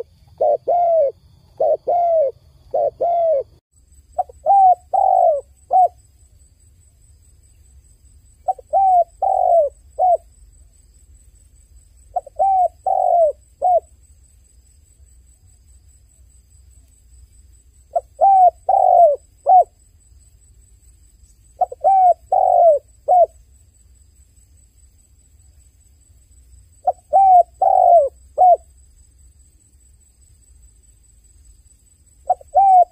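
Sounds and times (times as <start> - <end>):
dove cooing: 0.0 - 3.6, 4.2 - 6.0, 8.4 - 10.3, 12.1 - 13.9, 17.9 - 19.8, 21.6 - 23.4, 26.8 - 28.6, 32.2 - 32.9.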